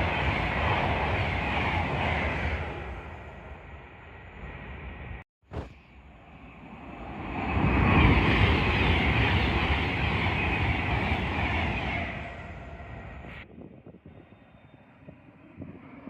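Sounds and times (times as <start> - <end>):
train rumbling past: 0.0 - 5.2, 6.0 - 13.5.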